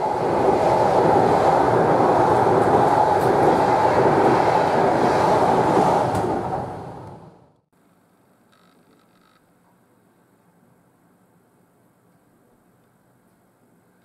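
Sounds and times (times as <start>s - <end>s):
train wheels rushing on rails: 0.0s - 7.5s.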